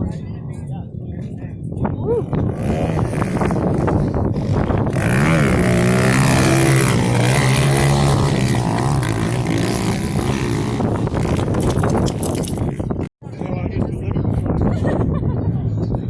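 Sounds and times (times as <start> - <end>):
pit bike engines revving: 2.1 - 13.1.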